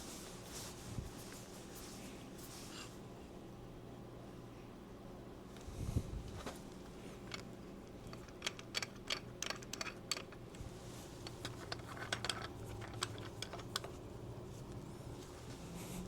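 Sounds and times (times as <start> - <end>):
light metal clicks and taps: 7.3 - 10.5, 11.2 - 14.0.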